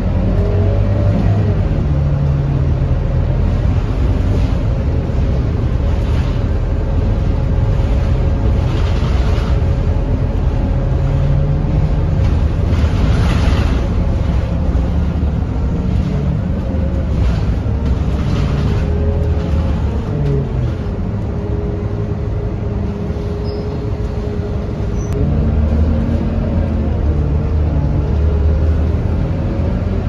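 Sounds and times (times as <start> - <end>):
bus diesel engine drone: 0.0 - 30.0.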